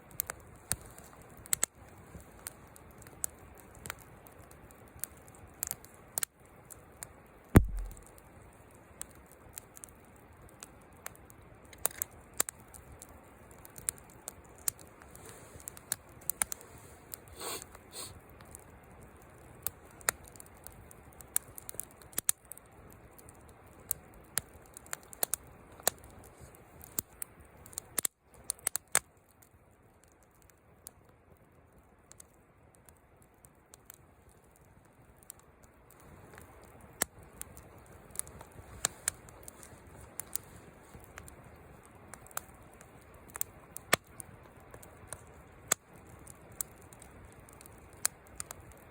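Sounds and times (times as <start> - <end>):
wood fire crackling: 0.0 - 48.9
heavy thump: 7.6 - 8.0.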